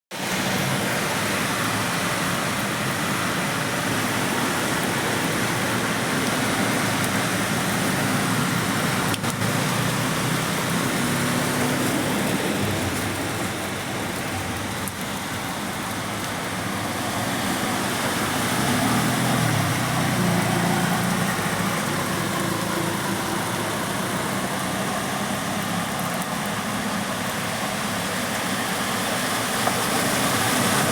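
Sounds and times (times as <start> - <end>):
heavy rain: 0.1 - 30.9
vehicles passing on wet road: 0.1 - 30.9.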